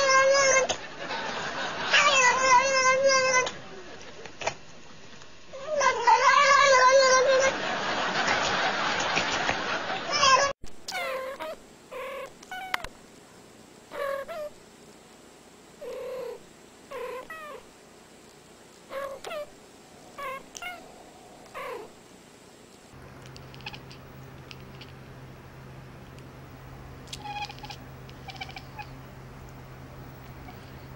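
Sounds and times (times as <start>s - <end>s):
cat yowling: 0.0s - 0.7s, 1.9s - 3.5s, 5.6s - 7.5s, 10.1s - 12.9s, 13.9s - 14.6s, 15.8s - 17.6s, 18.9s - 22.0s, 23.5s - 24.9s, 27.1s - 29.0s
cats chirping meows: 2.0s - 3.5s, 5.6s - 7.5s, 10.1s - 12.9s, 13.9s - 14.6s, 15.8s - 17.6s, 18.9s - 21.9s, 23.4s - 24.9s, 27.1s - 29.0s, 30.2s - 30.9s.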